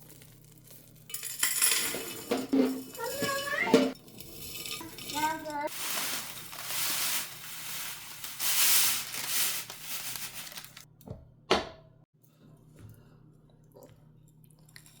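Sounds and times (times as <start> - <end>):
dry material crinkling: 4.7 - 10.9.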